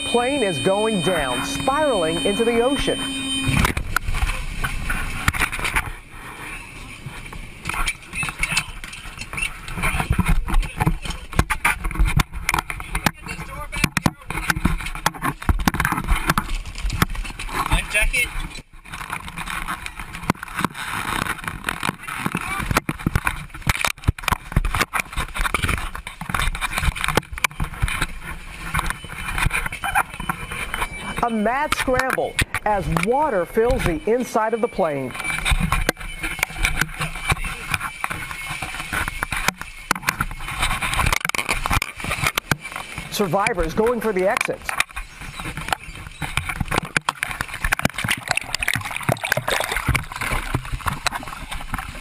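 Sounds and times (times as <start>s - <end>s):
water sloshing and splashing: 44.2s - 52.0s.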